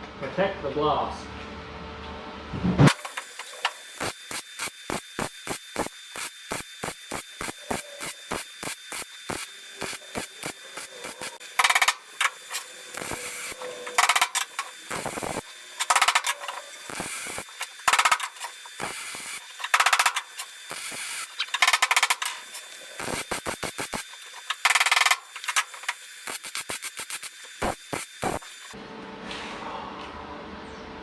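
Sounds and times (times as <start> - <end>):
quick clicks: 2.9 - 28.8
welding arc crackle: 2.9 - 28.8.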